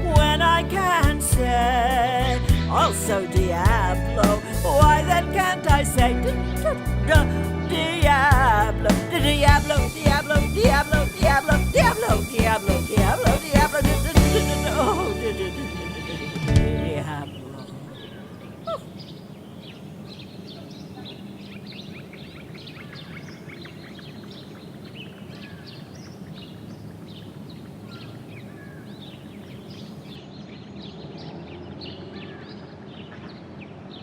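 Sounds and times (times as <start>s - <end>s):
low background noise: 11.4s - 34.0s
small birds chirping: 17.0s - 34.0s.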